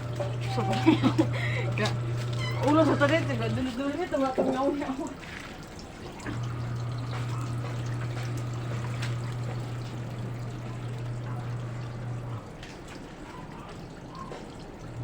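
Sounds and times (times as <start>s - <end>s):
water trickling: 0.0s - 15.0s.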